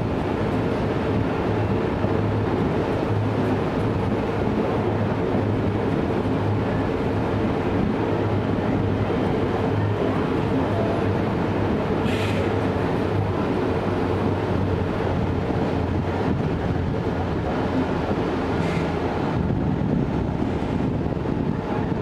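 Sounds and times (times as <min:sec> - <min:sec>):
electric train rumbling: 0:00.0 - 0:22.0
short hisses: 0:12.0 - 0:12.5, 0:18.6 - 0:19.0.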